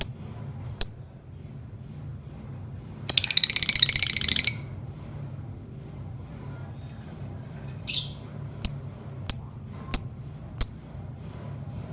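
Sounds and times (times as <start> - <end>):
bird chirping: 0.0 - 1.0, 3.1 - 4.8, 7.9 - 10.9
bird ticking chatter: 0.0 - 1.0, 3.1 - 4.7, 8.7 - 10.9.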